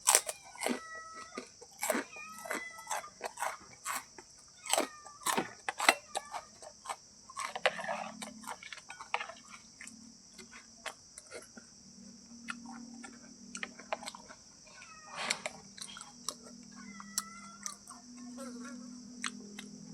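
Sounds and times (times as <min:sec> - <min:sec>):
high-pitched insect drone: 0:11.8 - 0:19.9.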